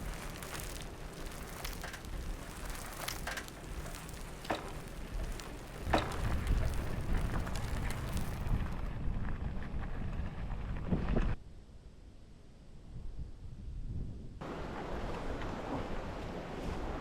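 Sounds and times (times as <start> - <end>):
bicycle tyres rolling on rough surface: 0.0 - 11.4
wind rumbling on microphone: 0.0 - 11.5, 12.8 - 17.0.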